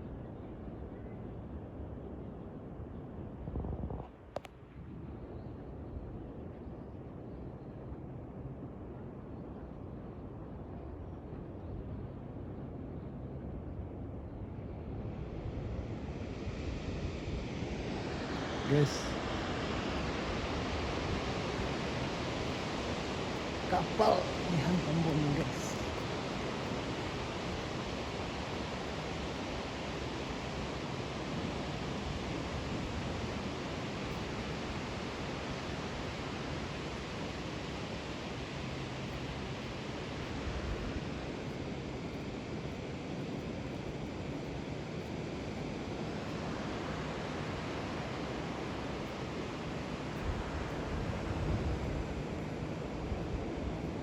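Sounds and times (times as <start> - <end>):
tidal bore waves rushing: 16.2 - 54.0.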